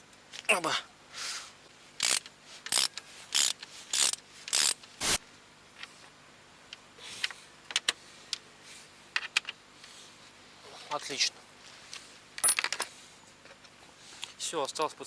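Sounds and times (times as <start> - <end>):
ratchet wrench ratcheting: 2.0 - 5.2.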